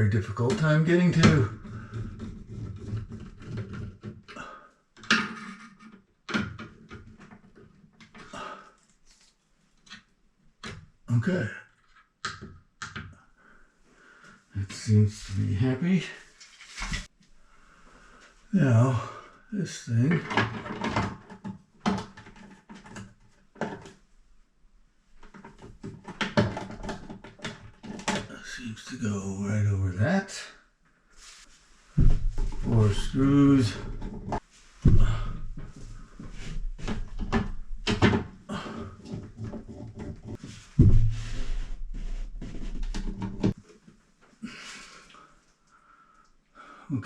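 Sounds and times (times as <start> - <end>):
part knocking and rattling: 0.5 - 4.4, 5.0 - 8.4, 20.2 - 24.0, 25.2 - 28.3, 32.0 - 43.7.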